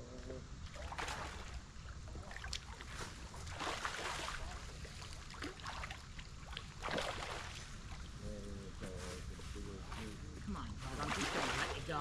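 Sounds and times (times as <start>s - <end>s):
river water splashing against boat: 0.6s - 8.2s, 10.8s - 12.0s
steady low rumble: 7.6s - 12.0s.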